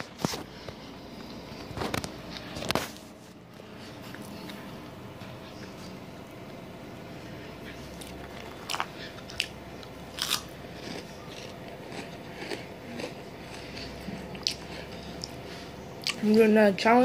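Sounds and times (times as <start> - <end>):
crunchy snack being bitten and chewed: 7.9 - 15.4.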